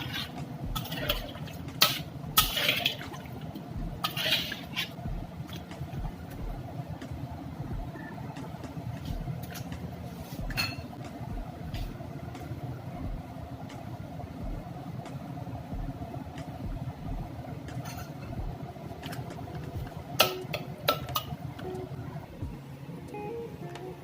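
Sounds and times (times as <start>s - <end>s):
utensils clinking: 0.0s - 3.3s, 4.0s - 5.7s, 9.4s - 9.8s, 10.5s - 11.0s, 17.7s - 18.4s, 19.0s - 21.7s
low kitchen rumble: 0.0s - 24.0s.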